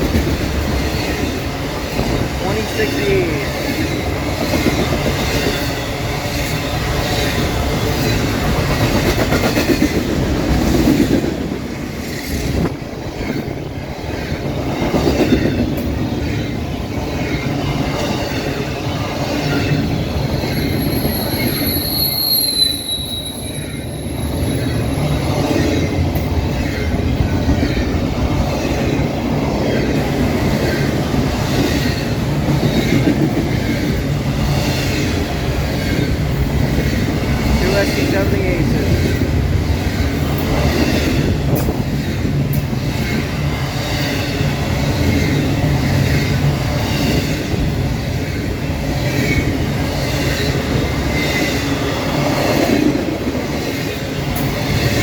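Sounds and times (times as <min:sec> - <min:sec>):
freight train rumbling past: 0:00.0 - 0:55.0
train wheel squeal: 0:19.3 - 0:26.0.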